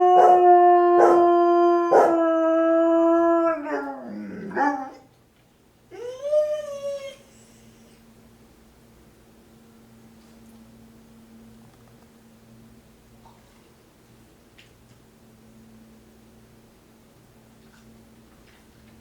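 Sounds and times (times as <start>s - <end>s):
dogs howling: 0.0s - 5.1s, 5.9s - 7.4s.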